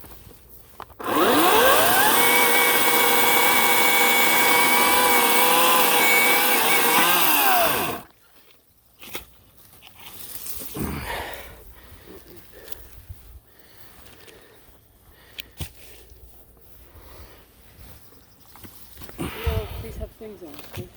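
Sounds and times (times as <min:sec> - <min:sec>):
electric chainsaw motor whine: 0:01.0 - 0:08.1.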